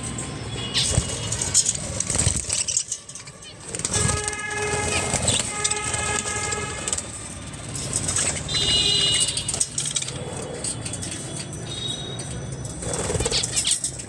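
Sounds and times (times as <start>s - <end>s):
train horn: 4.0s - 7.0s.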